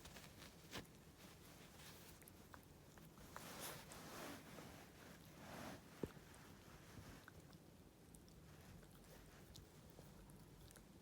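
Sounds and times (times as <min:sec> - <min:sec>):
puppy rustling: 0:00.0 - 0:07.4.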